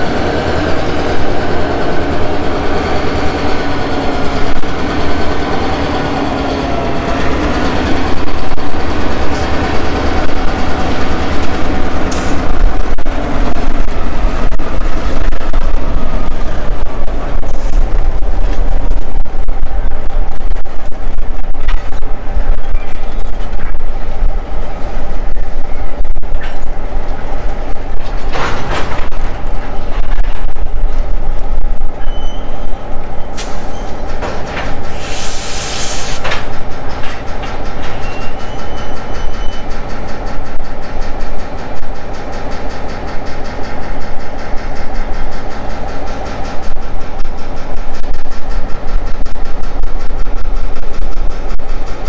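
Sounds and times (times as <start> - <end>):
diesel locomotive engine: 0.0 - 52.0
steel wheels clattering on rails: 0.0 - 52.0
hissing bursts: 34.9 - 36.2.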